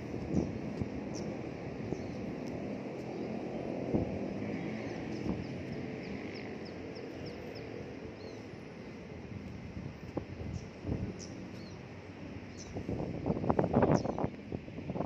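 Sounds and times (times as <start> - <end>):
distant city noise: 0.0 - 15.0
wind rumble: 0.0 - 15.0
small bird chirping: 13.7 - 14.3.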